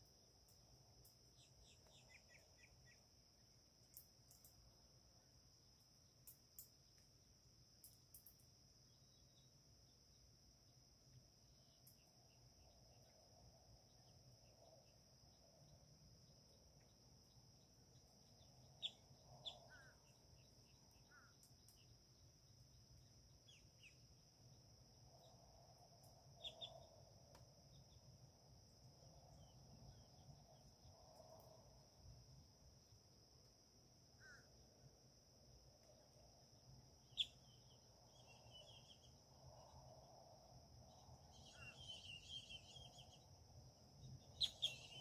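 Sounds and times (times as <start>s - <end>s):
high bird chirps: 37.1s - 37.6s, 41.4s - 43.2s, 44.4s - 45.0s.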